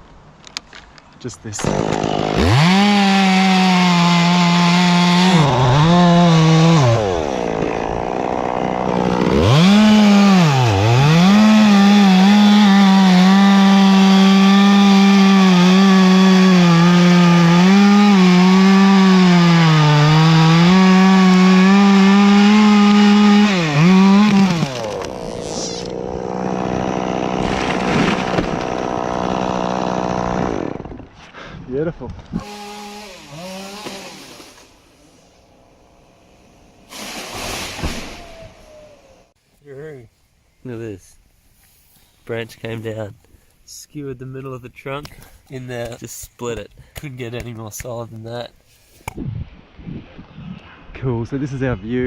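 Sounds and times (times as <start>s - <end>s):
chainsaw cutting wood: 1.6s - 31.2s, 32.3s - 35.4s, 36.8s - 39.3s.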